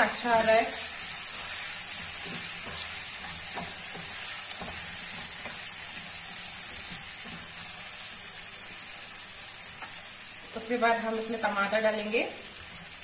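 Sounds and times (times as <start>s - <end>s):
potatoes sizzling in oil: 0.0s - 13.0s
spatula scraping pan: 0.8s - 6.2s.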